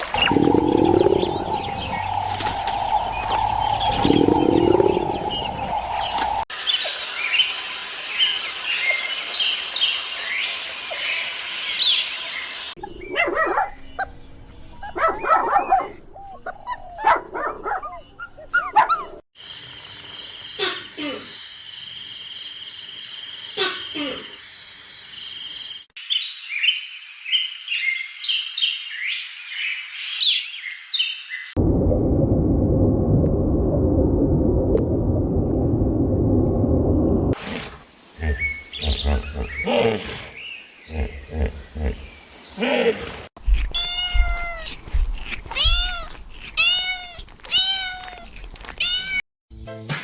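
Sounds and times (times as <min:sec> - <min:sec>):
bird chirping: 0:00.2 - 0:31.5, 0:37.9 - 0:42.7
cat meowing: 0:43.5 - 0:49.2.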